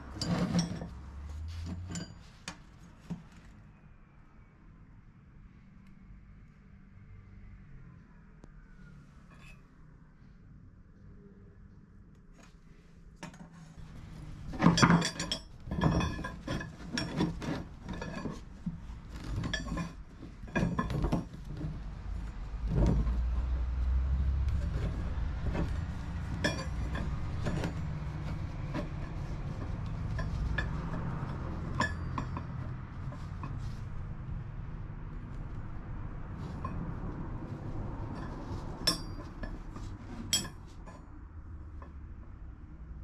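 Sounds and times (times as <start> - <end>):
steel pieces clanking: 14.4 - 18.4, 19.2 - 21.3, 24.7 - 33.6, 40.3 - 40.6.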